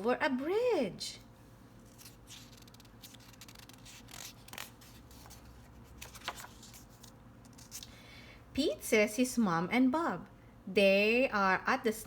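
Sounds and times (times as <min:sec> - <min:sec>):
book page turning: 0:01.8 - 0:08.0.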